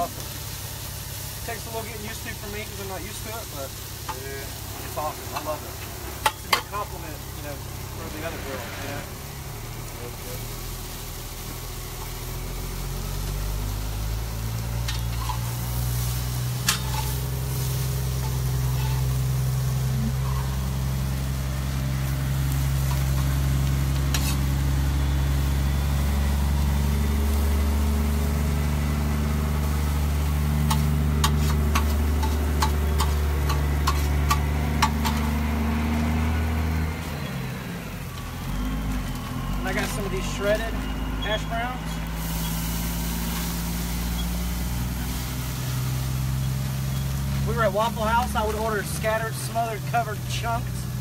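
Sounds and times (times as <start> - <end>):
food sizzling in a pan: 0.0 - 51.0
large vehicle engine humming: 0.0 - 51.0.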